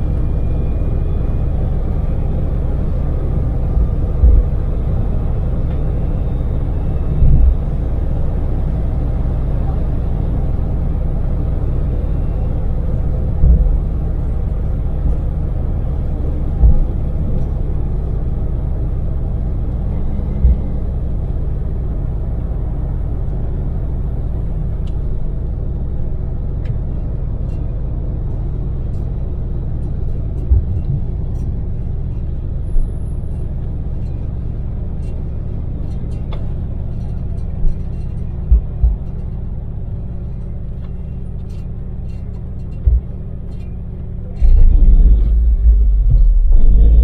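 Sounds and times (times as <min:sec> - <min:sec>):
engine and tyre rumble in cabin: 0:00.0 - 0:47.0
short low thumps: 0:02.7 - 0:05.8, 0:07.0 - 0:08.0, 0:13.1 - 0:18.1, 0:20.1 - 0:20.9, 0:30.4 - 0:31.1, 0:38.4 - 0:39.3, 0:42.7 - 0:43.4, 0:44.4 - 0:47.0.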